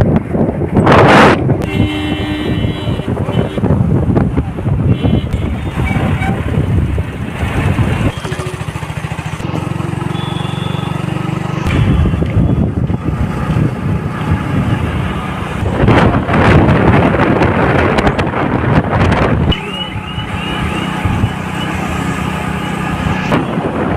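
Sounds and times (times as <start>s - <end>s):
road noise: 0.0s - 23.9s
motorcycle engine running: 5.4s - 23.9s.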